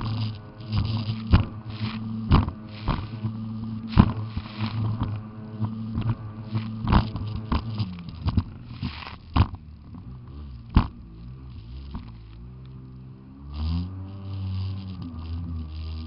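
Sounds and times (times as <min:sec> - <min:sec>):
jet ski engine running: 0:00.0 - 0:16.0
sharp knocks and thuds: 0:00.8 - 0:01.6, 0:02.2 - 0:03.2, 0:05.9 - 0:10.0, 0:10.7 - 0:11.0.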